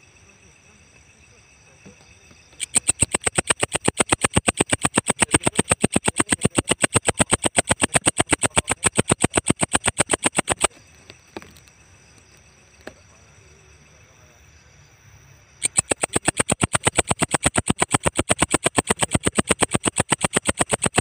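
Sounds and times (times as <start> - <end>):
faint clicks: 2.6 - 11.6, 15.6 - 21.0
insect calling in pulses: 2.6 - 12.4, 15.6 - 21.0.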